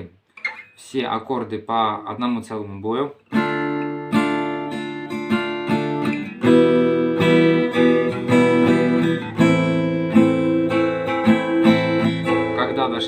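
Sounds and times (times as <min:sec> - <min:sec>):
acoustic guitar strumming: 0:00.4 - 0:00.8, 0:03.3 - 0:13.0.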